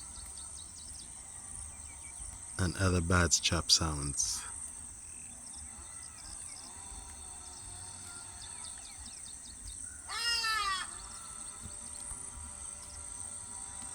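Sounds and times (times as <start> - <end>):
insects trilling: 0.0 - 13.9
faint animal calls: 9.9 - 12.1.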